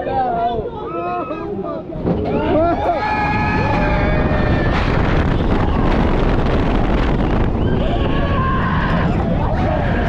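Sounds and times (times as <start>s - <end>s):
roller coaster train speeding: 2.0s - 10.0s
wind blasting over microphone: 2.0s - 10.0s
rider screaming: 7.7s - 10.0s.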